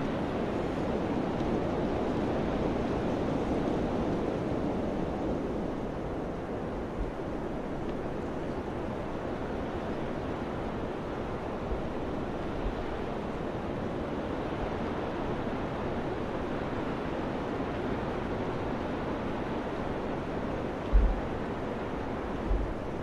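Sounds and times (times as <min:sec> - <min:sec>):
wind blowing: 0:19.6 - 0:23.0
wind thumps on microphone: 0:20.9 - 0:21.4, 0:22.4 - 0:22.9.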